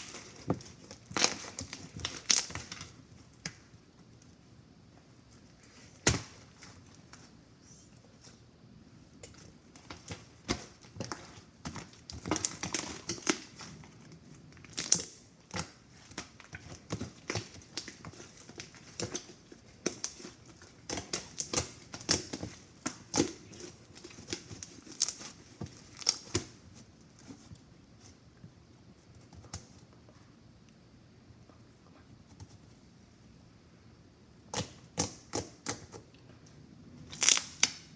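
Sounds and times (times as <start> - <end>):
slime squishing with pops: 9.2 - 13.9, 14.6 - 26.6, 37.1 - 37.9.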